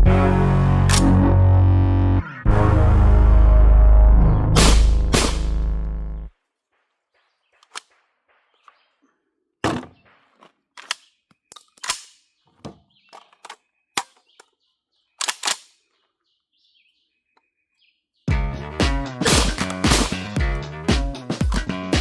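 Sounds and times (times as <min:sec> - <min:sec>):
birds chirping faintly: 0:06.2 - 0:18.3
shells and magazines clicking: 0:07.6 - 0:08.0, 0:10.7 - 0:12.4, 0:13.1 - 0:14.6, 0:15.2 - 0:15.9.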